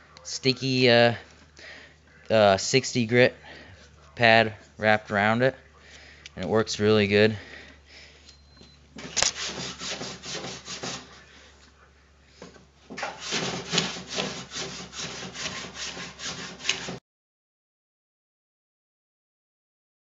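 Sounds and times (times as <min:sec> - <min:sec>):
sandpaper scraping metal panel: 0:09.0 - 0:11.2, 0:13.0 - 0:17.0.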